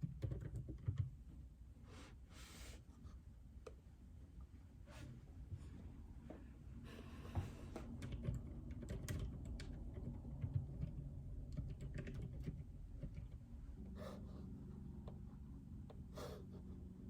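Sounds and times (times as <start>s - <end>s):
typing on mechanical keyboard: 0.0s - 1.2s, 7.9s - 13.4s.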